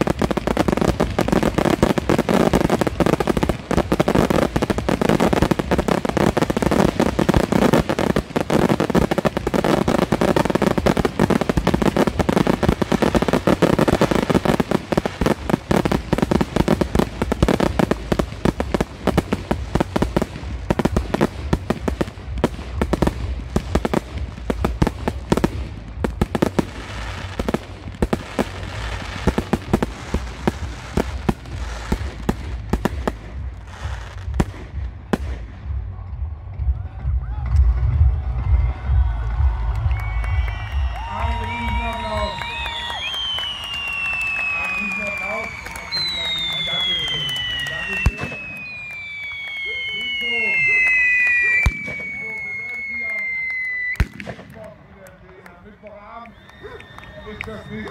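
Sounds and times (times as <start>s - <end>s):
fireworks bangs and crackling: 0.0s - 57.9s
low rumble: 15.1s - 41.8s.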